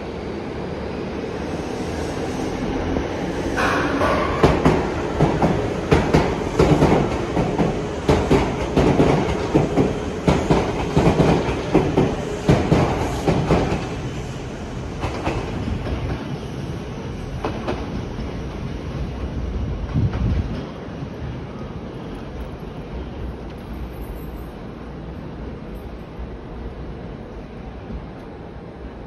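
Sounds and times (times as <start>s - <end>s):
train wheels clattering on rails: 3.5s - 16.5s, 17.3s - 18.8s.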